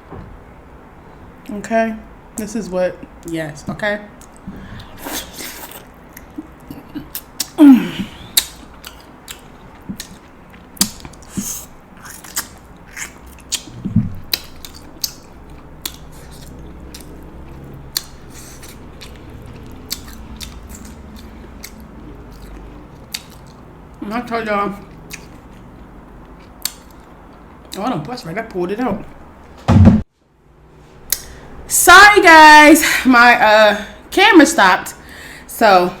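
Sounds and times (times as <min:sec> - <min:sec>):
chewing and mouth sounds: 0:04.2 - 0:24.0, 0:24.7 - 0:28.2.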